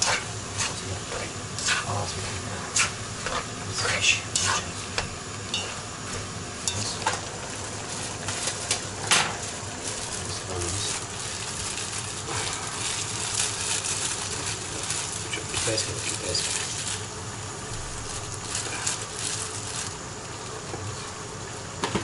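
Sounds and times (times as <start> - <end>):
spatula scraping a pot: 0.0 - 4.9
fish sizzling in hot oil: 2.7 - 21.8.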